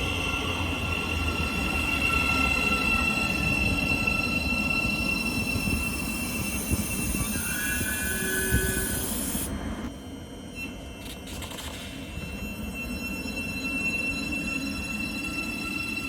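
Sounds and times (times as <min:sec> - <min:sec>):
faint high whine: 0:00.0 - 0:16.0
train rumble: 0:00.0 - 0:16.0
train wheels squealing: 0:00.0 - 0:16.0.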